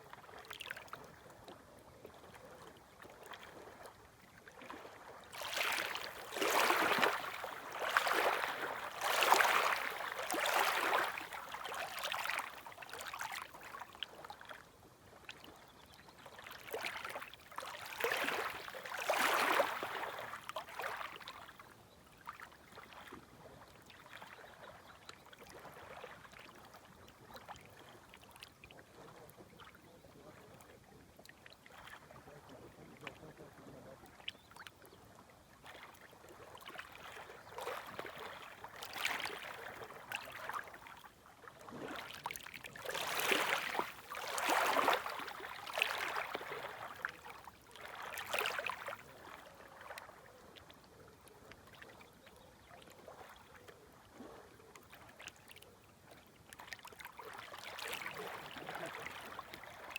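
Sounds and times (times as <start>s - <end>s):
small waves washing at shoreline: 2.3s - 15.6s, 16.4s - 23.2s, 35.6s - 50.4s, 54.1s - 59.9s.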